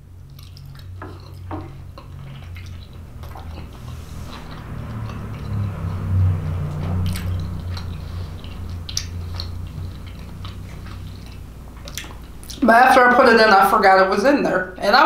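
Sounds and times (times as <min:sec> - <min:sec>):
low chewing rumble: 0:00.0 - 0:14.9
wet mouth clicks: 0:00.3 - 0:05.9, 0:06.5 - 0:12.6.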